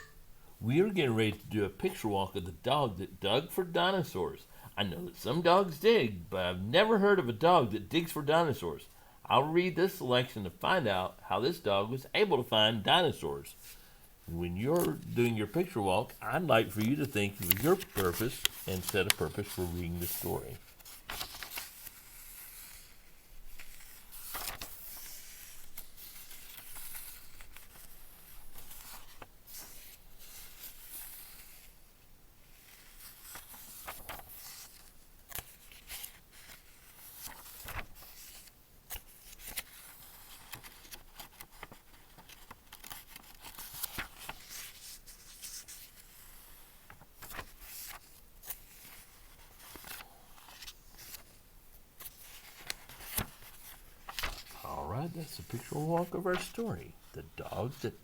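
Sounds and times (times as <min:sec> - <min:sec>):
book pages turning: 0:14.3 - 0:31.7, 0:32.6 - 0:51.4, 0:52.0 - 0:58.0.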